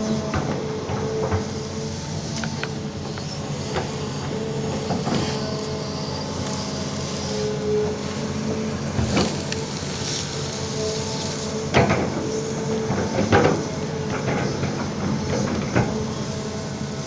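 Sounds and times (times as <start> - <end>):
diesel engine running: 0.0 - 17.0
metal knocks and clanks: 11.7 - 16.0.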